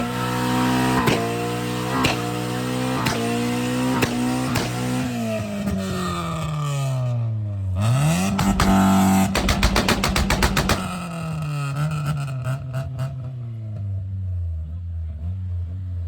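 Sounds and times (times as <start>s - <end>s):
car engine revving: 0.0s - 7.0s, 7.7s - 13.2s.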